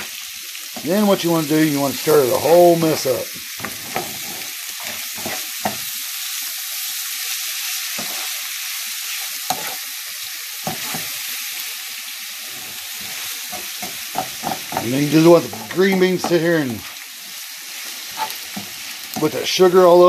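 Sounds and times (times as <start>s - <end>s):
food sizzling in a frying pan: 0.0s - 20.0s
utensil scraping against pan: 3.6s - 5.8s, 9.5s - 9.8s, 17.8s - 19.4s.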